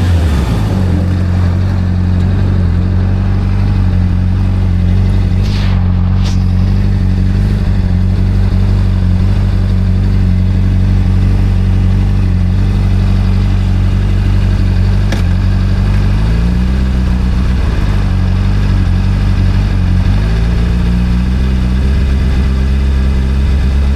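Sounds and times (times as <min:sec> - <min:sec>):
motorcycle engine idling: 0:00.9 - 0:05.5, 0:06.8 - 0:23.9.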